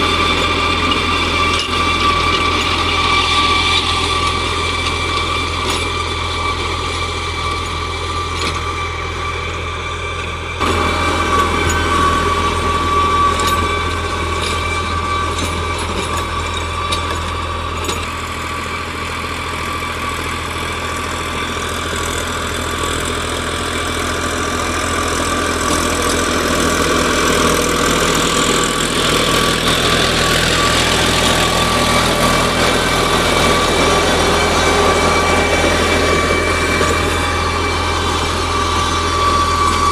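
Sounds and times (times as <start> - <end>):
tractor engine running: 0.0 - 39.9
high whine: 8.6 - 21.7, 26.8 - 39.9.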